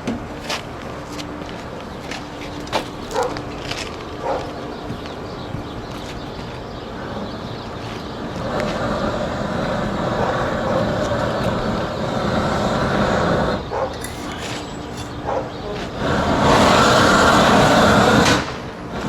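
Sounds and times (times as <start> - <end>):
roofing torch blowing: 8.0 - 19.0.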